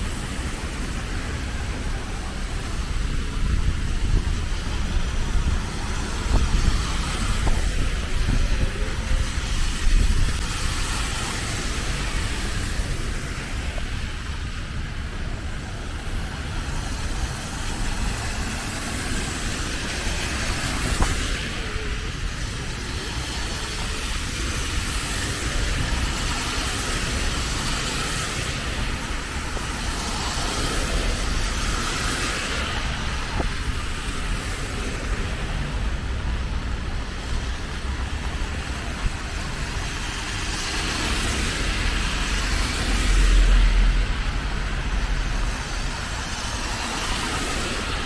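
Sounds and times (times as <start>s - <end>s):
car traffic on wet roads: 0.0s - 48.0s
rain hissing: 0.0s - 48.0s.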